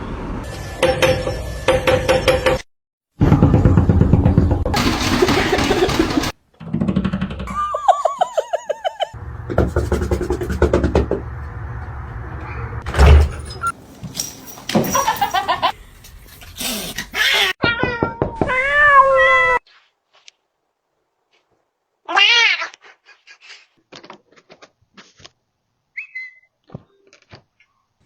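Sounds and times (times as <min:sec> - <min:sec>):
loud thump: 0:12.9 - 0:13.6.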